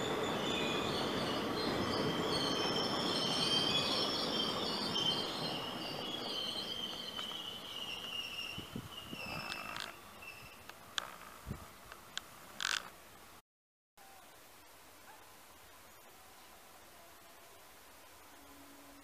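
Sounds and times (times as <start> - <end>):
train coaches rumbling past: 0.0 - 11.8.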